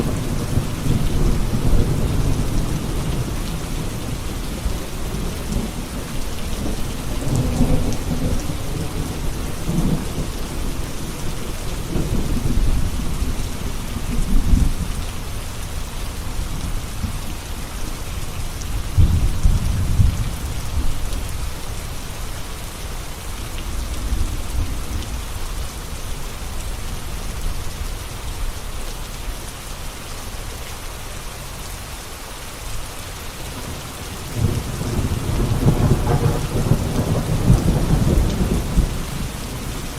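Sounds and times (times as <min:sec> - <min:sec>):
thunder rumbling: 0:00.0 - 0:15.7, 0:18.6 - 0:21.6, 0:33.6 - 0:39.9
steady rain: 0:00.0 - 0:39.9.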